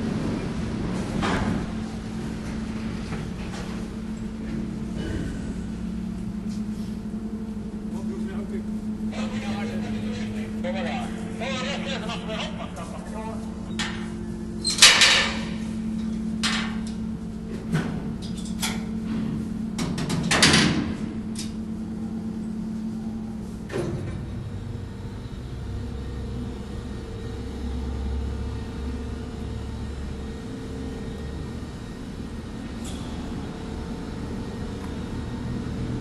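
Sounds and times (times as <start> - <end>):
ferry machinery drone: 0.0 - 36.0
metal clanks and bangs: 13.8 - 17.0, 17.6 - 21.2.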